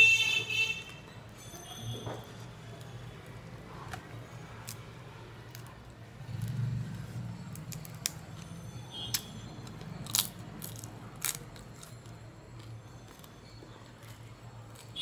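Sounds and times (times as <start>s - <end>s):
chewing food: 9.7s - 15.0s.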